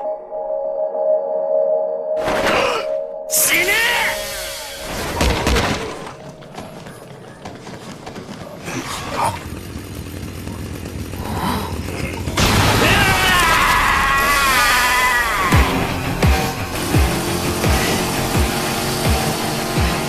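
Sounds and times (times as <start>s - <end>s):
chainsaw engine revving: 8.6s - 20.0s.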